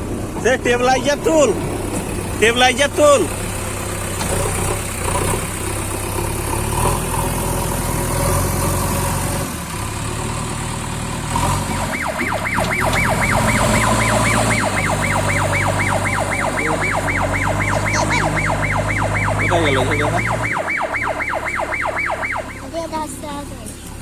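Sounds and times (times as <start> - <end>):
diesel engine running: 0.0 - 24.0
warbling siren-like alarm: 11.6 - 23.0.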